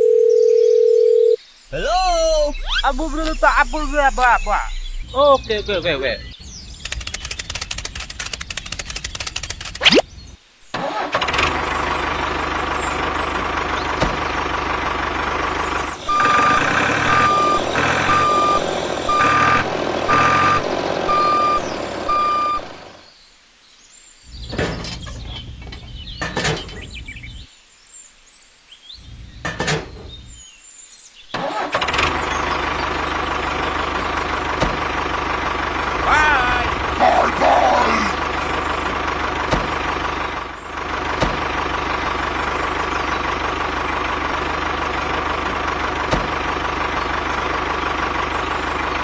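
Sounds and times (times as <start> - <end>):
short electronic beeps: 16.1 - 22.7.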